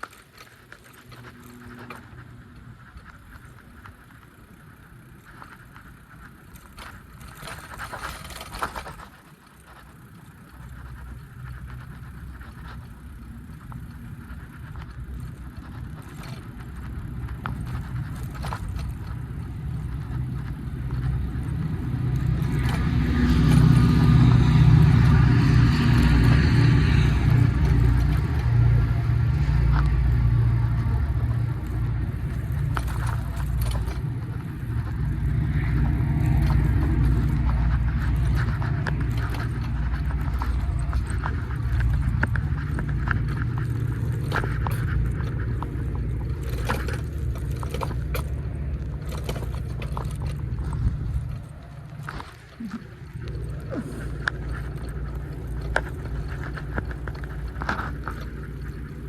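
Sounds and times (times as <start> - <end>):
vehicle engine humming: 0.0 - 59.0.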